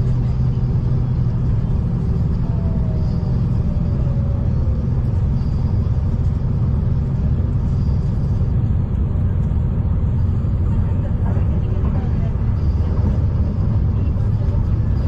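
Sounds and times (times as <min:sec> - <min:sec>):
diesel train rumble from inside: 0:00.0 - 0:15.0.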